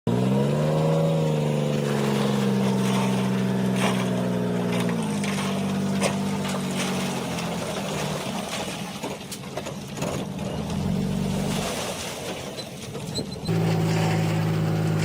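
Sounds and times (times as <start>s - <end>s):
heavy diesel engine running: 0.1s - 11.7s, 12.9s - 15.0s.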